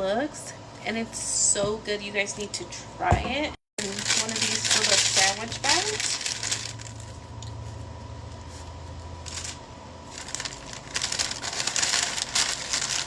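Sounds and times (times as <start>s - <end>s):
plastic bag crinkling: 3.8s - 7.4s, 9.2s - 13.0s.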